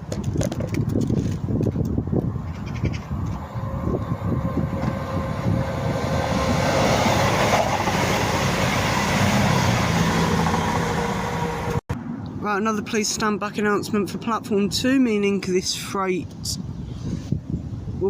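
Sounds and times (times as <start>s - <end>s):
train engines running: 3.2s - 11.8s
train wheels rushing on rails: 3.2s - 11.8s.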